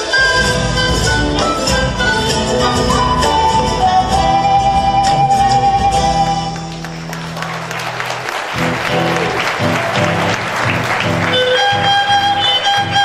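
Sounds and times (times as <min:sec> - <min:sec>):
guitar strumming: 0:04.4 - 0:13.0
audience applauding: 0:06.3 - 0:13.0
fiddle melody: 0:08.6 - 0:13.0.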